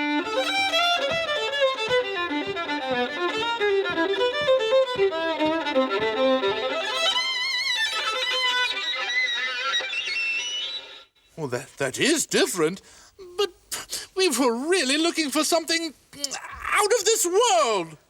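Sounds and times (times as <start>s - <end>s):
solo violin playing fast notes: 0.0s - 11.1s.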